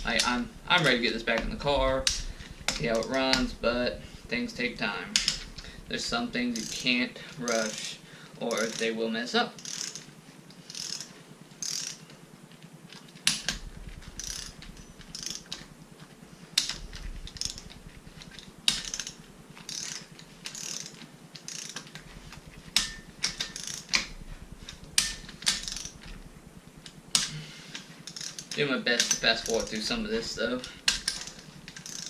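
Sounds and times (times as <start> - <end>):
ratchet wrench clicking: 5.2 - 7.9, 8.5 - 8.9, 9.6 - 12.1, 13.2 - 15.6, 16.6 - 26.2, 26.8 - 32.0.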